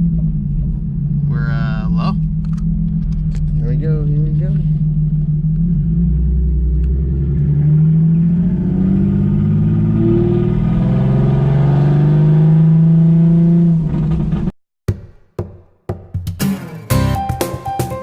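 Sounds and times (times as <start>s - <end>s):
car engine accelerating: 0.0s - 14.5s.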